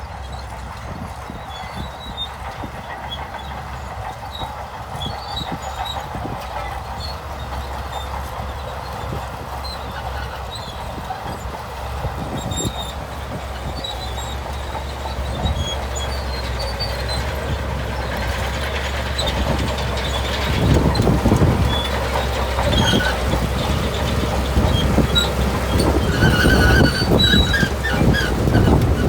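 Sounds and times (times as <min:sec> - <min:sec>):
bulldozer diesel engine: 0:00.0 - 0:29.0
crawler tracks clanking: 0:00.0 - 0:29.0.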